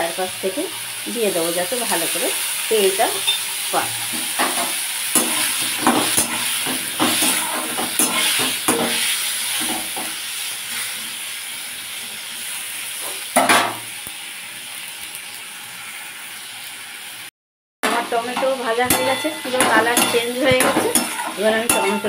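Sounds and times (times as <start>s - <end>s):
tomatoes sizzling in hot oil: 0.0s - 22.0s
spatula scraping pan: 3.1s - 11.0s, 18.2s - 22.0s.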